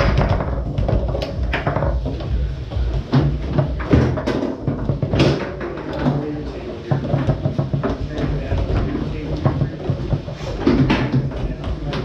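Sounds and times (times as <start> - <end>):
foosball ball cracking off players: 0.0 - 2.3, 3.0 - 12.0
foosball rods knocking: 0.0 - 2.3, 3.0 - 12.0
steady low hum: 0.0 - 12.0.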